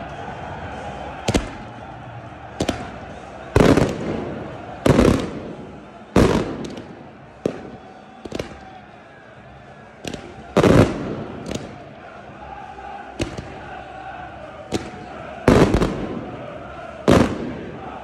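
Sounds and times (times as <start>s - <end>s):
small firework cracks: 1.2s - 1.8s, 2.5s - 8.9s, 10.0s - 12.0s, 13.2s - 13.7s, 17.1s - 17.9s
fireworks bangs echoing: 1.2s - 8.9s, 10.0s - 12.1s, 13.1s - 13.8s, 14.6s - 18.0s.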